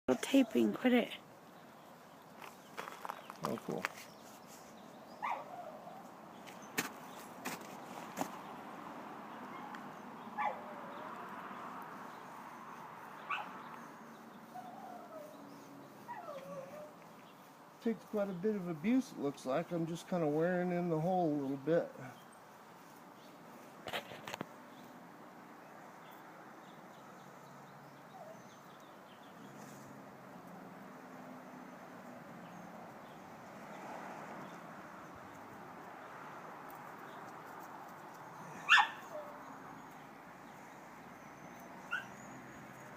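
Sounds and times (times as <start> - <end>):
outdoor background noise: 0.1 - 42.9
dog whimpering: 14.5 - 15.4, 16.0 - 17.0.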